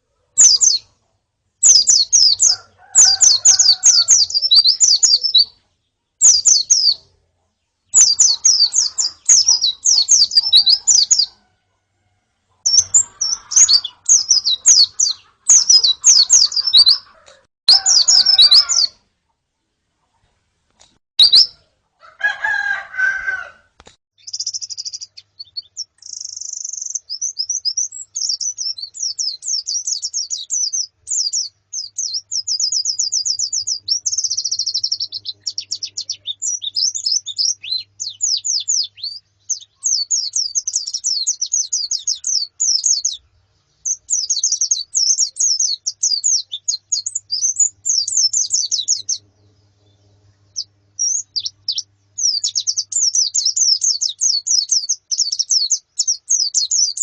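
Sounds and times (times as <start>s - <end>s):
birds twittering high chirps: 0.0s - 11.8s, 12.4s - 19.0s, 20.1s - 21.7s, 24.2s - 57.0s
harsh bird call: 1.6s - 5.6s, 7.9s - 11.5s, 12.7s - 19.0s.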